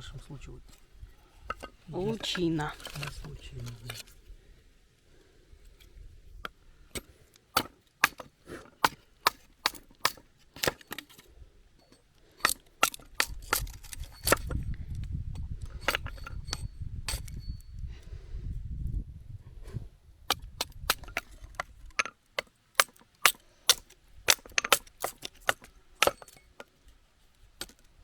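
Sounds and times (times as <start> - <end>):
wood splitting cracks: 6.4 - 11.2, 11.9 - 17.4, 20.3 - 26.8, 27.5 - 28.0.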